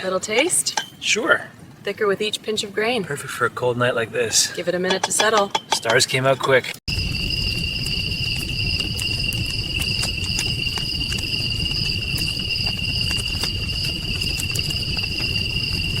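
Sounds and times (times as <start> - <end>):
crickets trilling: 6.9 - 16.0
low even rumble: 6.9 - 16.0.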